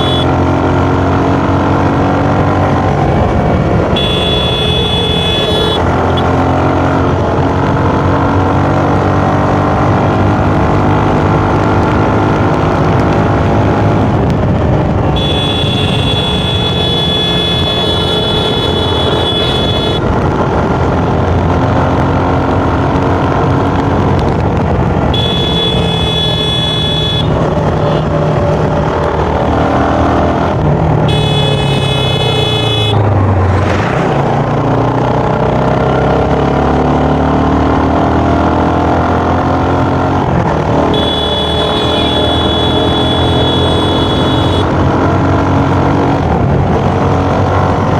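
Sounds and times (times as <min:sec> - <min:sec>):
motorcycle engine revving: 0:00.0 - 0:47.9
high steady tone: 0:40.9 - 0:44.7.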